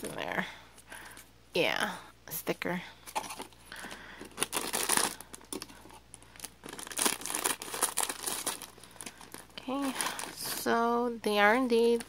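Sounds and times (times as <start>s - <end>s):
snack bag crinkling: 3.1s - 10.6s.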